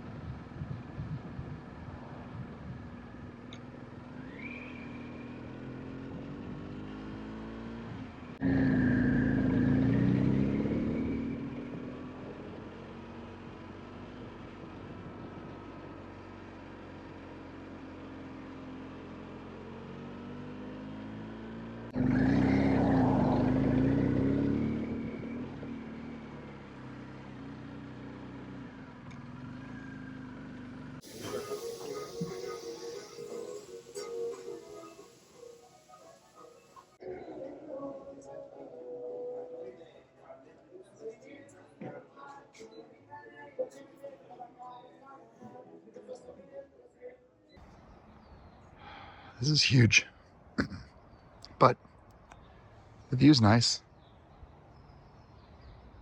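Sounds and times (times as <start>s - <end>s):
vehicle engine running: 0.0s - 37.0s.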